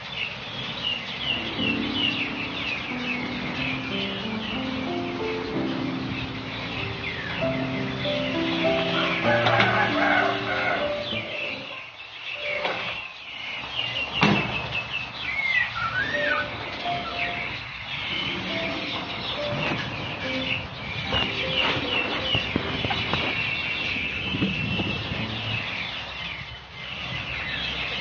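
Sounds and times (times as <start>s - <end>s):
small birds chirping: 0.0s - 28.0s
rising and falling whistled note: 15.8s - 17.6s.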